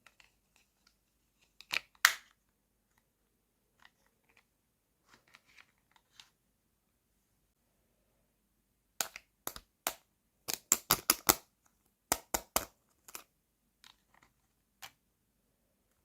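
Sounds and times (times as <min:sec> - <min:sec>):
plastic toy packaging clicking: 0:09.0 - 0:11.5.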